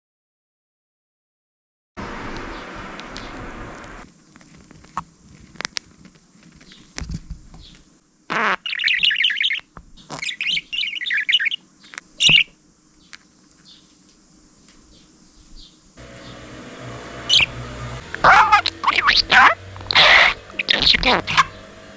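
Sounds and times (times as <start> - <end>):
budgerigar chirping and warbling: 8.3 - 12.6, 17.3 - 17.5, 18.2 - 21.6.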